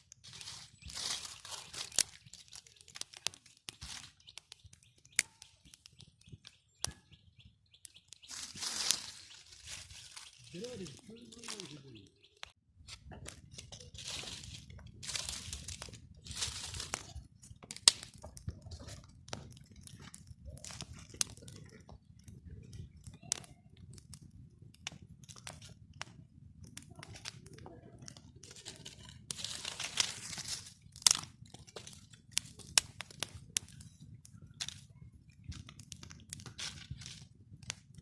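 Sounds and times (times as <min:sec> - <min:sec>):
twigs snapping: 0:00.0 - 0:07.1, 0:07.7 - 0:12.6, 0:13.3 - 0:21.8, 0:26.7 - 0:33.9, 0:34.6 - 0:34.8, 0:35.4 - 0:37.8
twigs and leaves crunching: 0:00.0 - 0:21.9, 0:26.9 - 0:34.9, 0:35.5 - 0:37.3.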